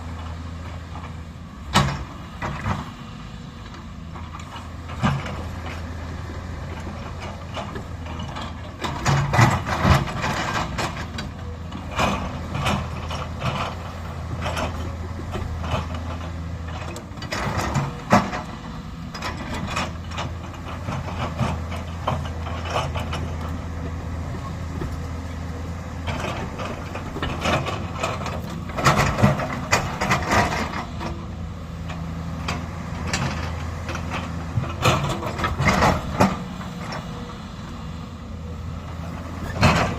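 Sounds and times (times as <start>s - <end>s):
diesel engine running: 0.0s - 39.9s
metal clanking and scraping: 6.6s - 31.3s.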